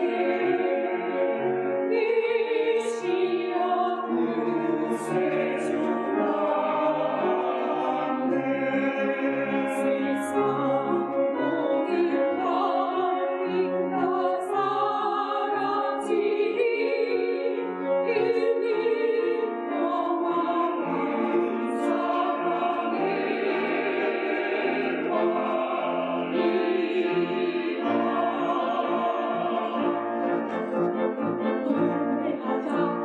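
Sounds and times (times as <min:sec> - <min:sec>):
hissing consonants from singers: 0:00.0 - 0:10.6, 0:20.8 - 0:30.4
choir singing a hymn: 0:00.0 - 0:33.0.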